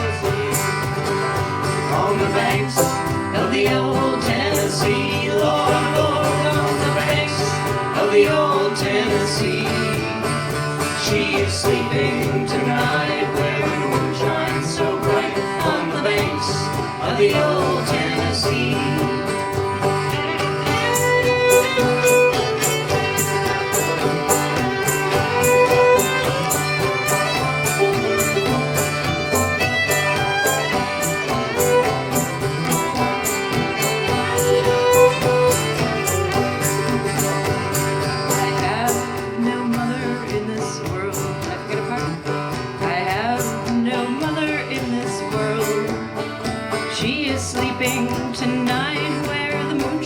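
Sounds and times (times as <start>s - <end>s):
strummed guitar chords: 0.0s - 50.0s
fiddle playing melody: 9.5s - 39.9s.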